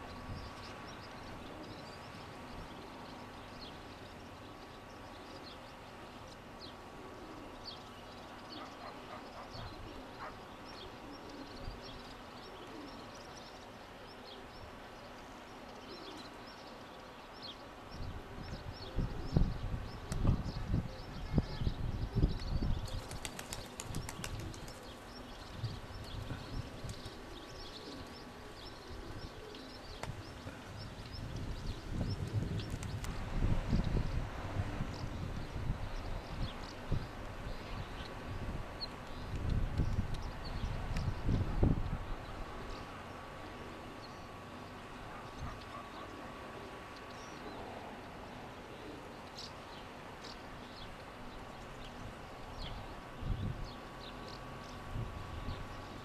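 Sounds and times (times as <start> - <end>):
small birds chirping: 0.0 - 34.2, 34.8 - 56.0
low wind rumble: 17.8 - 43.7, 50.7 - 56.0.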